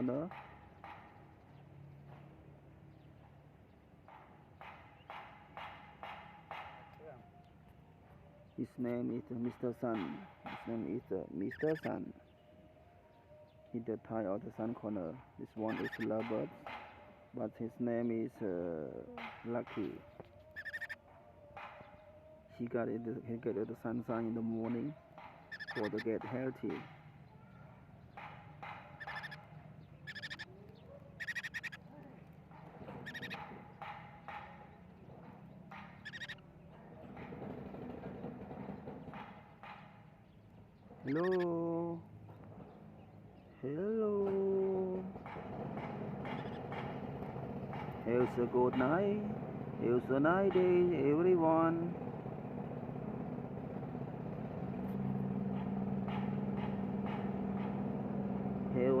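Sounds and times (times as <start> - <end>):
vehicle engine humming: 0.0 - 13.0, 13.7 - 59.0
parrots chirping shrilly: 11.5 - 11.9, 15.7 - 16.8, 20.5 - 21.0, 25.4 - 26.2, 28.6 - 31.9, 32.8 - 34.4, 35.8 - 36.5, 41.1 - 41.5, 46.2 - 46.9.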